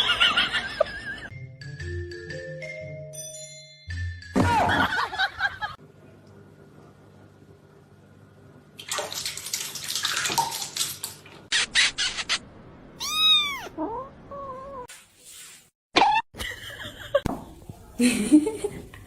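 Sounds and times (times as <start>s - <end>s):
cat meowing: 13.0s - 14.9s.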